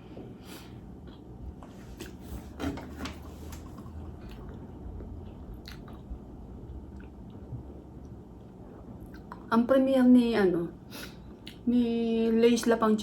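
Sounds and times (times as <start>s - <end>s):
mouth chewing: 4.0s - 7.5s.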